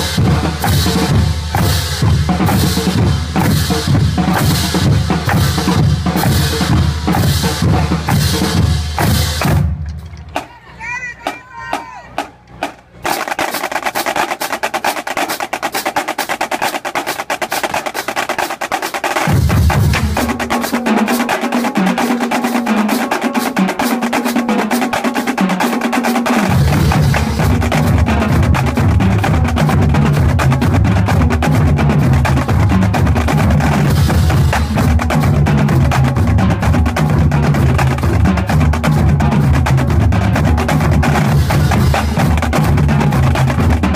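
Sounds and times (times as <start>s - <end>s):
bass drums: 0.0s - 13.2s, 19.2s - 22.0s, 26.3s - 43.9s
snare drum rolls: 0.0s - 43.9s.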